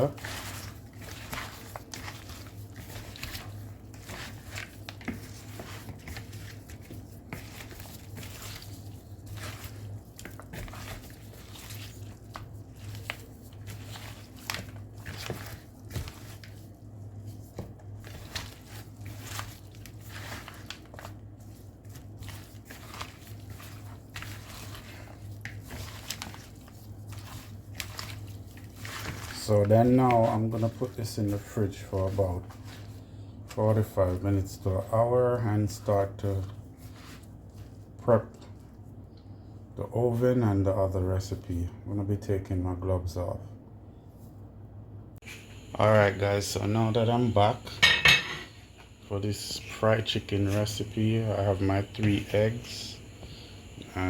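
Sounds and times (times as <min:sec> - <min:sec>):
raw chicken squelching: 0:00.0 - 0:34.2
steady low hum: 0:00.0 - 0:54.0.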